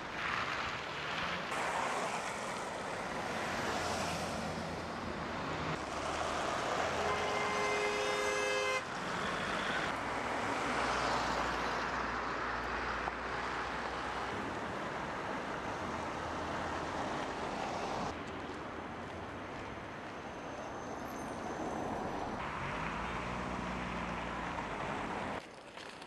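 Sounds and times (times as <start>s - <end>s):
vehicle road and engine noise: 0.0s - 26.0s
horn-like tone: 7.0s - 8.8s.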